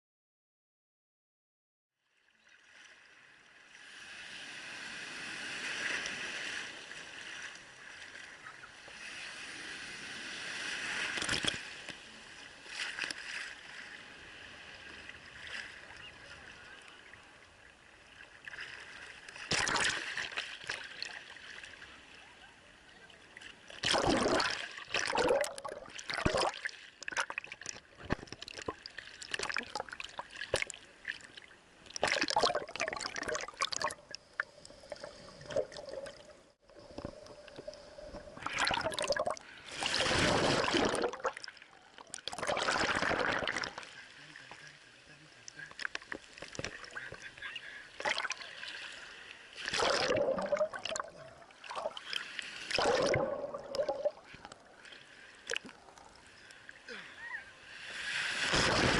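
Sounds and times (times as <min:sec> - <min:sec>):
waves surging over camera: 0:03.6 - 0:17.4, 0:32.0 - 0:58.9
water sloshing: 0:18.4 - 0:21.8, 0:23.5 - 0:44.7.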